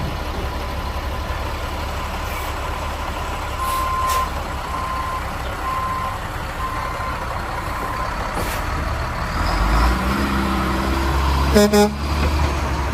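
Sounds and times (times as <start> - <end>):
diesel engine running: 0.0 - 12.9
reversing beeper: 3.6 - 7.2.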